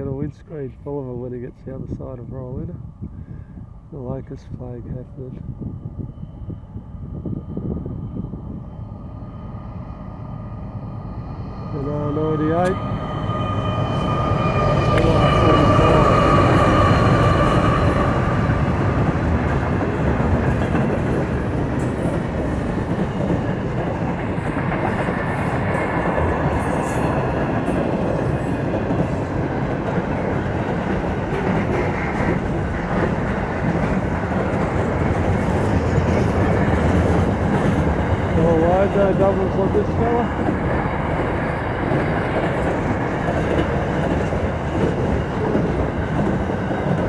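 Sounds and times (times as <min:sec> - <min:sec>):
locomotive whine: 0:00.0 - 0:47.0
freight wagons rumbling over rails: 0:10.5 - 0:47.0.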